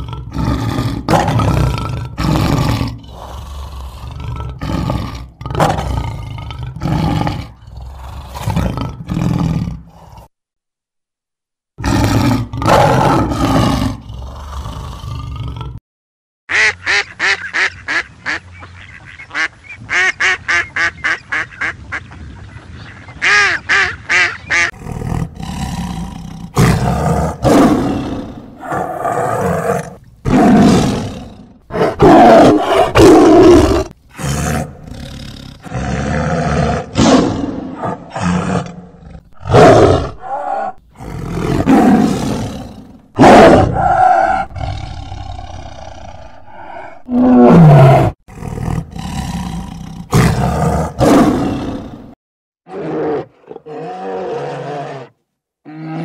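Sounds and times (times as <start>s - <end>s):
tiger roaring and growling: 0.0s - 10.3s, 11.8s - 15.8s, 24.7s - 56.0s
duck quacking: 16.5s - 22.2s, 23.2s - 24.7s.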